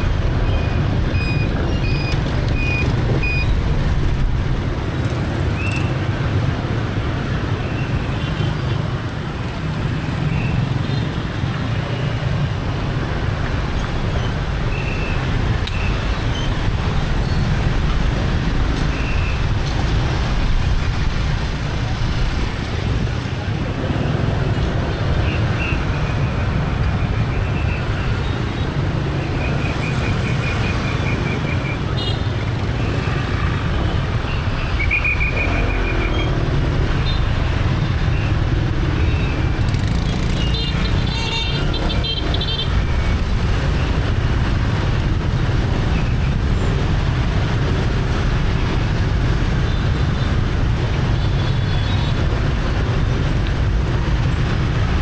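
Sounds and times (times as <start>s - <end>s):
motorbike engine and road rumble: 0.0s - 55.0s.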